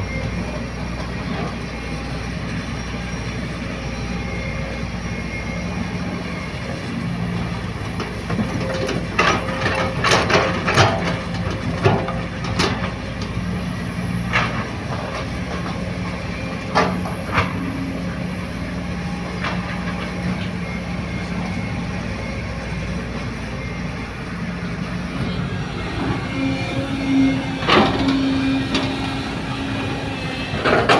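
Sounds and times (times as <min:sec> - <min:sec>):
diesel earthmoving machinery running: 0:00.0 - 0:30.9
metal clanks and knocks: 0:07.9 - 0:13.4, 0:26.0 - 0:30.9.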